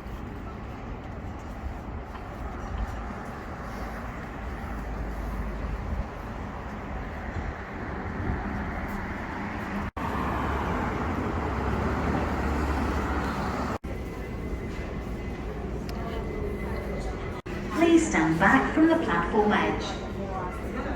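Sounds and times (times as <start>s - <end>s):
road vehicles passing: 0.4s - 14.5s.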